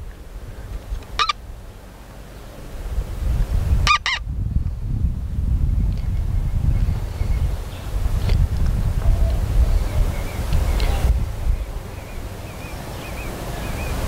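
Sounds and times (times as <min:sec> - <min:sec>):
bird honking calls: 0:01.1 - 0:01.4, 0:03.8 - 0:04.2.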